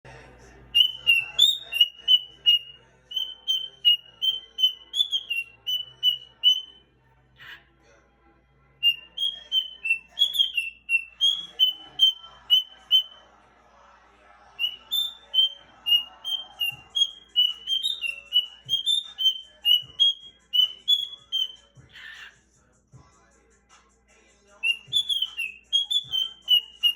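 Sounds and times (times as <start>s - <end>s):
cage bird singing: 0.5s - 7.6s, 8.8s - 13.2s, 14.6s - 22.4s, 24.5s - 26.9s.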